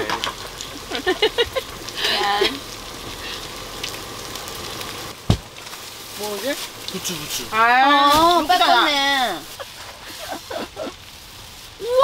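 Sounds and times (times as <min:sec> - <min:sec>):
potatoes sizzling in a pan: 0:00.0 - 0:12.0.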